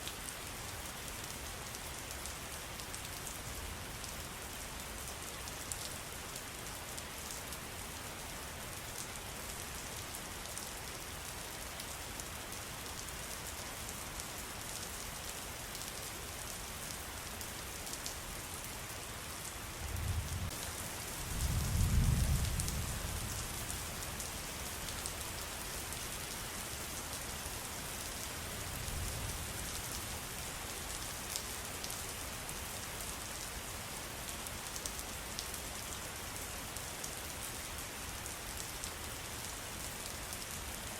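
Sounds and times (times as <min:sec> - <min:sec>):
rain pattering: 0:08.7 - 0:40.9.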